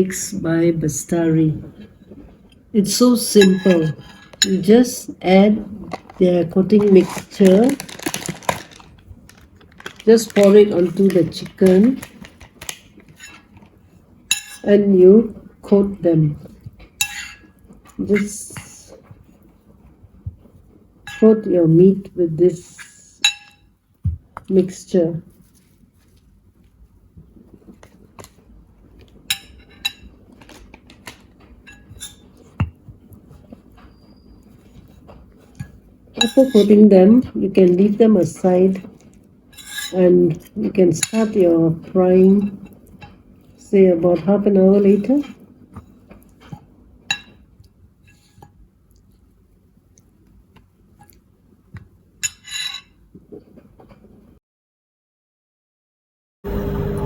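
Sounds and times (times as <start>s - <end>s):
kitchen utensils and dishes clinking: 3.3s - 4.7s, 5.9s - 8.9s, 9.7s - 13.6s, 14.3s - 14.9s, 17.0s - 18.3s, 29.3s - 32.7s, 34.8s - 36.9s, 39.5s - 43.2s, 46.4s - 47.4s, 52.2s - 53.0s
dish scraping: 3.4s - 4.7s, 34.7s - 36.9s, 39.5s - 40.1s.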